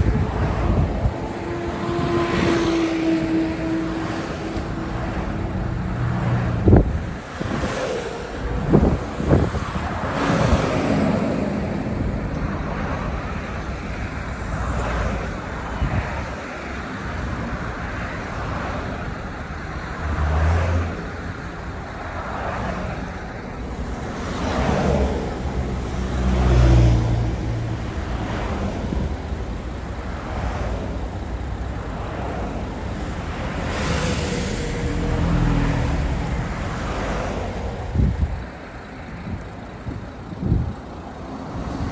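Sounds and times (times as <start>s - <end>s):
road traffic: 0.0s - 41.9s
vehicles passing: 0.0s - 41.9s.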